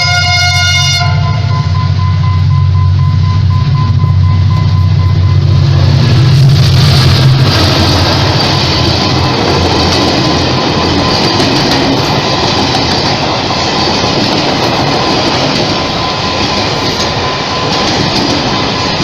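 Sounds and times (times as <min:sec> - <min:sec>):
train rolling on rails: 0:00.0 - 0:19.0
thin steady whine: 0:01.2 - 0:09.7.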